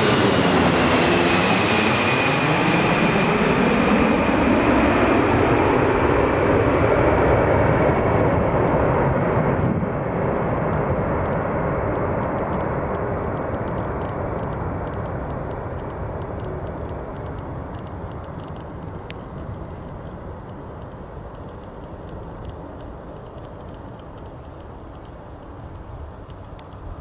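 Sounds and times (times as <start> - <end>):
jet airliner roar: 0.0 - 27.0.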